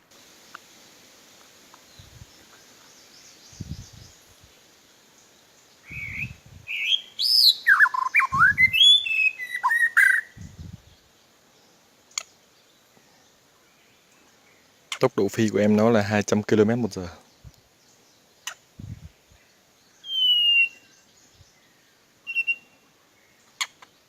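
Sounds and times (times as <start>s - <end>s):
bird singing whistled phrases: 5.8s - 10.5s, 20.0s - 21.1s, 22.2s - 22.8s.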